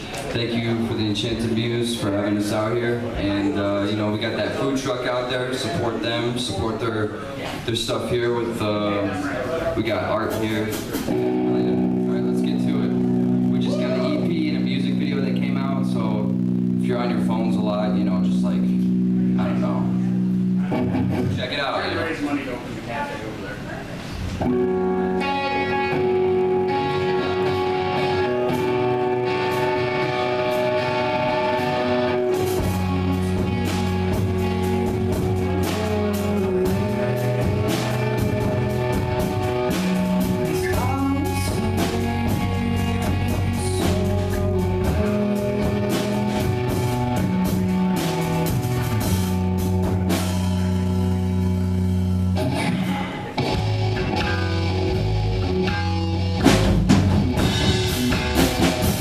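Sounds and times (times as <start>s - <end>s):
live rock band playing: 0.0s - 7.0s, 7.6s - 22.2s, 24.2s - 59.0s.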